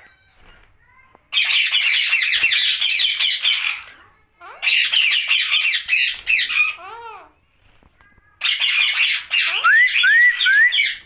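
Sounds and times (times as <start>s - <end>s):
parakeet squawking: 1.3s - 7.2s, 8.4s - 11.0s.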